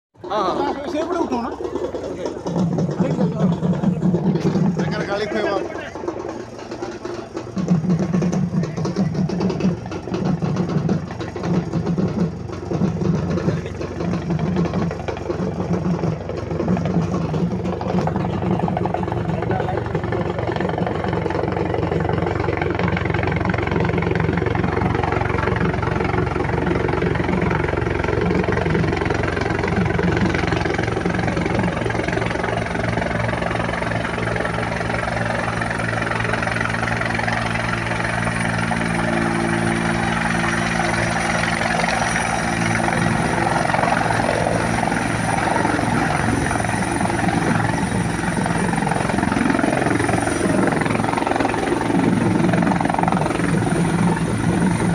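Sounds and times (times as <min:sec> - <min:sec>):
helicopter drone: 0:00.2 - 0:54.9
high turbine whine: 0:00.2 - 0:54.9.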